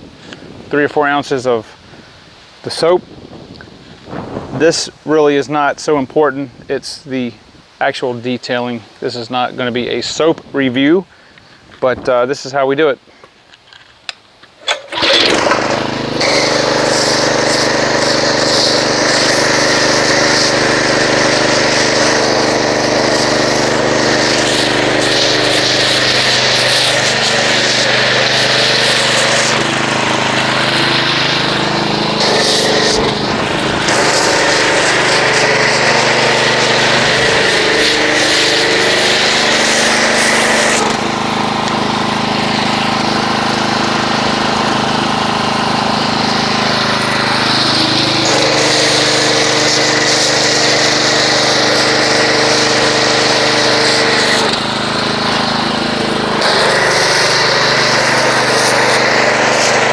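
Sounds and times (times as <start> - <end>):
pressure washer motor humming: 14.6 - 59.9
foam spray hissing: 16.1 - 43.2, 47.0 - 59.9.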